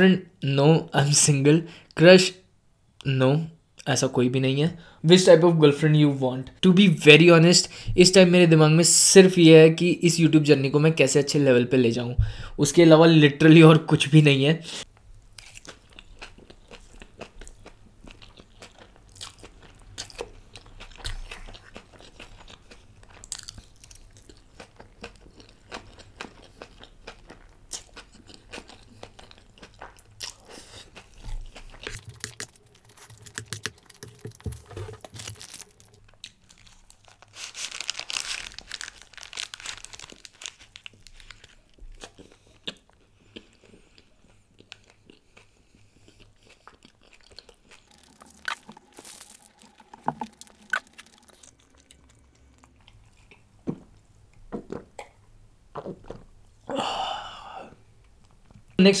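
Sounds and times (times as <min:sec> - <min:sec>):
close chewing noises: 0:15.4 - 0:53.6.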